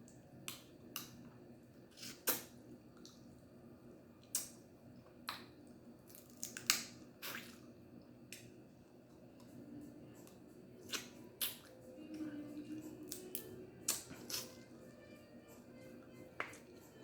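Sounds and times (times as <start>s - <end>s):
crab shells cracking: 6.1s - 7.0s.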